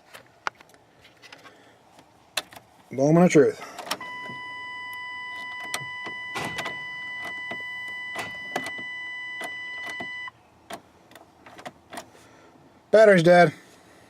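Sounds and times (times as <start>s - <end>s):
ignition clicks: 3.8s - 12.1s
high electronic warning tone: 4.0s - 10.3s.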